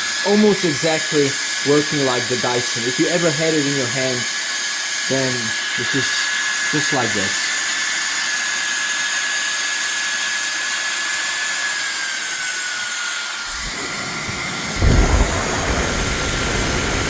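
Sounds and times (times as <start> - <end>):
hairdryer rushing air: 0.0 - 17.0
low rumble: 13.5 - 17.0.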